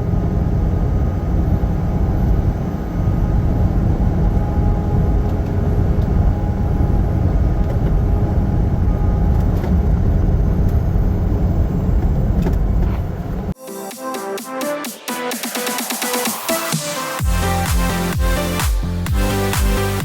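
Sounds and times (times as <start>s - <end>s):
truck engine and road noise: 0.0s - 13.6s.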